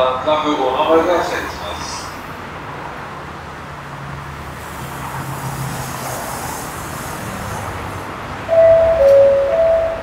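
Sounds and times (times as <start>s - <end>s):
electric train rumbling: 4.2s - 10.0s.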